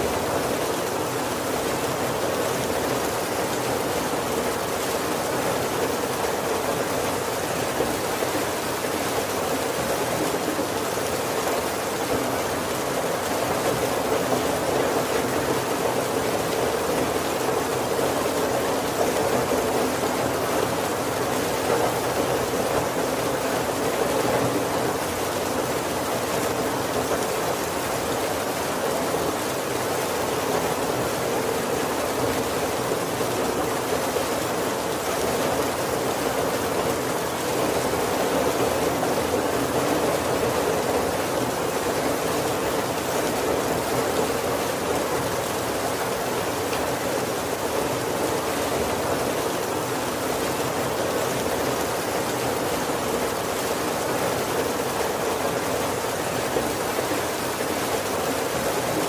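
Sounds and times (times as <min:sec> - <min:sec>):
heavy rain on wooden roof: 0:00.0 - 0:59.0.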